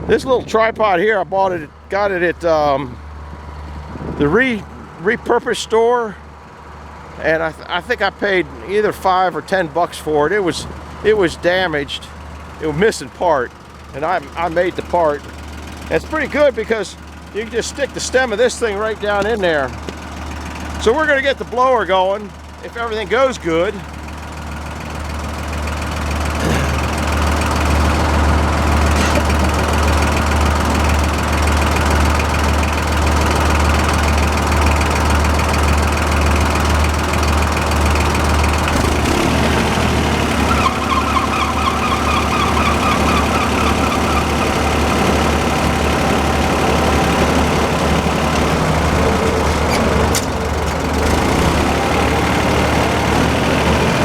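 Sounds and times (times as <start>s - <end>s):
engine drone near idle: 0.0s - 54.0s
rapid high chirping: 40.5s - 44.8s.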